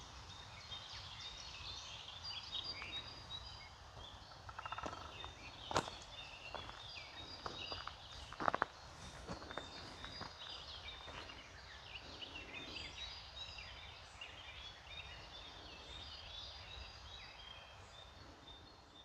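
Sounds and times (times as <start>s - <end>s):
birds singing and chirping: 0.0s - 19.0s
footsteps on path: 4.6s - 11.5s.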